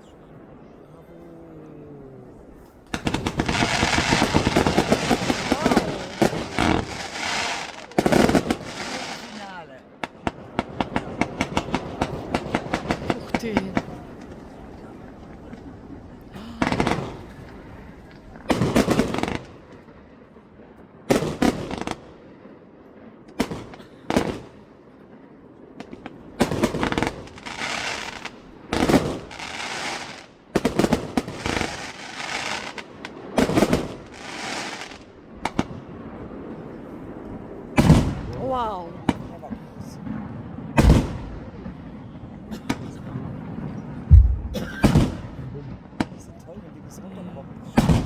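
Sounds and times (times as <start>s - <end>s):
fireworks crackling hiss: 2.2s - 19.8s, 25.9s - 38.4s
fireworks bangs: 2.2s - 46.8s, 47.4s - 48.0s.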